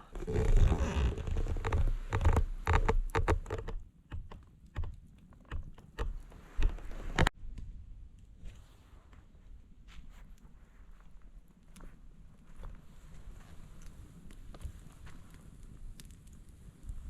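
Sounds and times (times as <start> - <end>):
campfire crackling and popping: 11.0 - 17.0.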